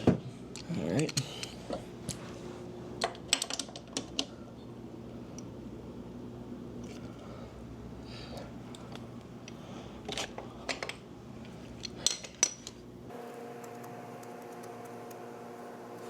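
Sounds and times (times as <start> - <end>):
steady low hum: 4.1 - 16.0.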